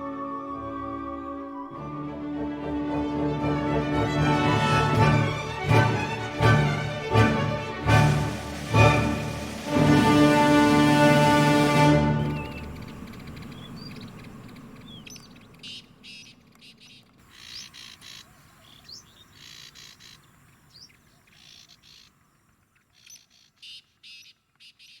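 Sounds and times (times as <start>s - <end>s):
rising whistled bird notes: 0.0s - 2.8s, 7.9s - 22.1s
faint outdoor background: 0.0s - 25.0s
birds chirping: 7.8s - 25.0s.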